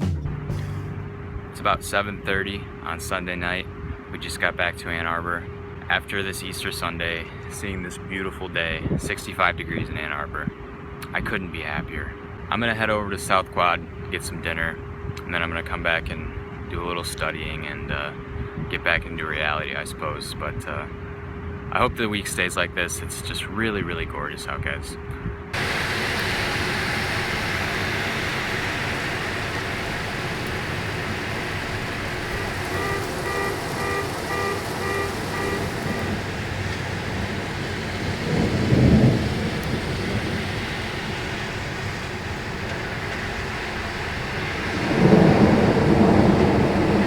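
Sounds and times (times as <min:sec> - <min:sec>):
steady rain falling: 0:25.6 - 0:47.0
thunder rumbling: 0:25.6 - 0:47.0.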